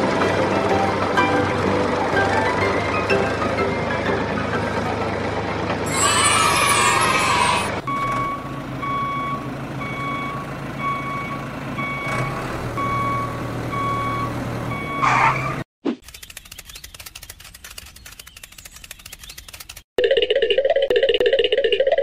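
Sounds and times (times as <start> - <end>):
engine drone: 0.0 - 15.7
reversing alarm beeping: 7.9 - 15.4
fast dense clicks: 16.0 - 19.9.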